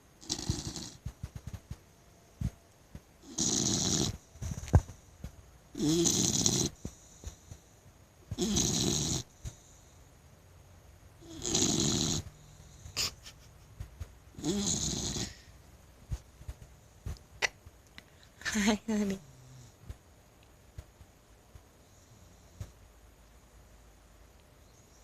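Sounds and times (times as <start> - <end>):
puppy snoring: 0.2 - 1.5, 3.2 - 4.9, 5.7 - 7.4, 8.3 - 9.6, 11.2 - 13.2, 14.3 - 15.6.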